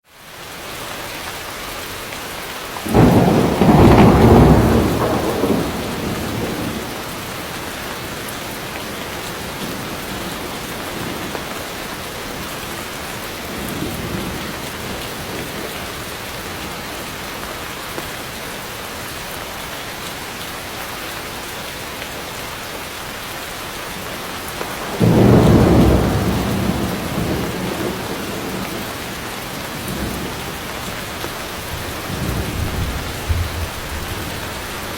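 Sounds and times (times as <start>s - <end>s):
heavy rain: 0.0s - 34.9s
thunder rumbling: 2.8s - 7.4s, 24.7s - 34.9s.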